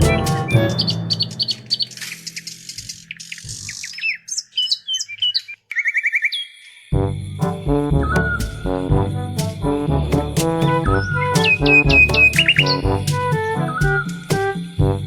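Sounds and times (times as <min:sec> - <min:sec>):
background music: 0:00.0 - 0:02.4, 0:07.0 - 0:15.0
bird trill: 0:00.0 - 0:06.6
birds chirping: 0:00.0 - 0:06.8.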